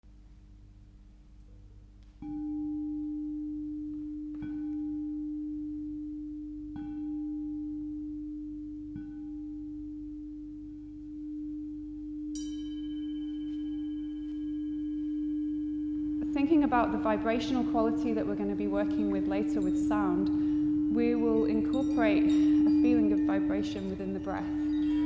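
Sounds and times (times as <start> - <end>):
singing bowl ringing: 2.2 - 25.0
bright metal instrument struck: 12.4 - 25.0.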